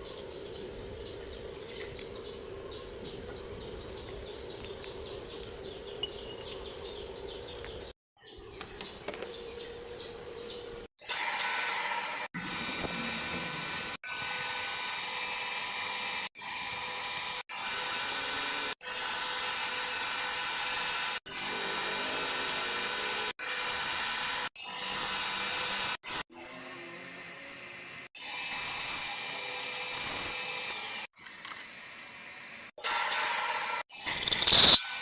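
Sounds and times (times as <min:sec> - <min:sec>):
power tool high-pitched whine: 0:11.0 - 0:35.0.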